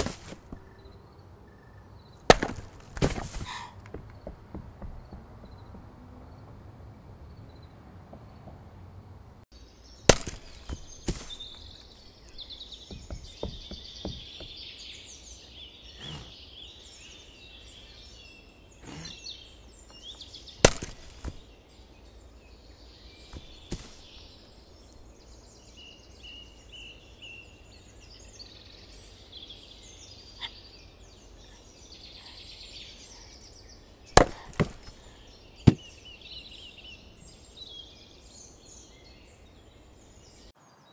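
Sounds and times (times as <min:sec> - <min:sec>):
axe chopping wood: 0:00.0 - 0:00.7, 0:02.2 - 0:05.9, 0:10.1 - 0:12.0, 0:12.9 - 0:14.6, 0:20.6 - 0:21.4, 0:23.3 - 0:24.2, 0:34.1 - 0:35.9
birdsong: 0:00.0 - 0:40.9.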